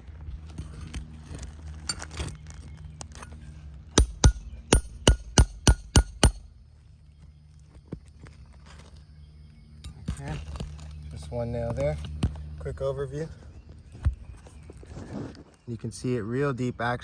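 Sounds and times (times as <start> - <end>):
hammer striking metal: 4.0 - 6.4.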